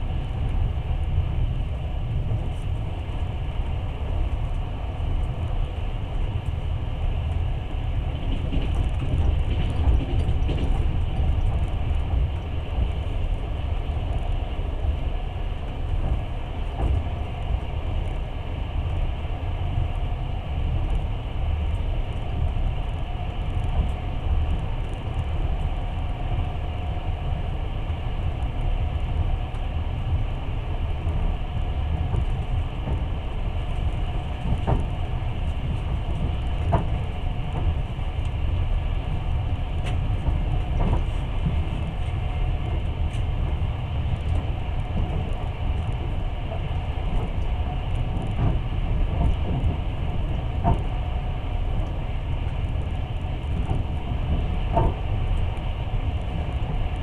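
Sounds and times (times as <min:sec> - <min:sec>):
train rumbling on track: 0:00.0 - 0:57.0
train wheels clicking: 0:08.0 - 0:13.2, 0:31.1 - 0:57.0.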